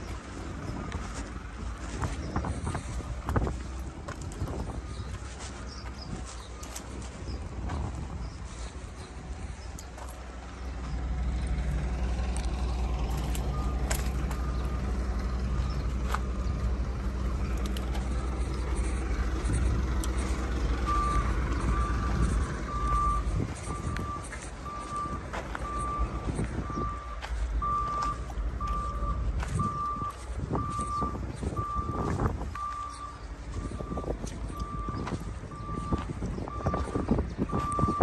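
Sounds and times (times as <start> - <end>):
heavy vehicle engine running: 0.0 - 38.0
reversing alarm beeping: 13.2 - 15.6, 20.6 - 38.0.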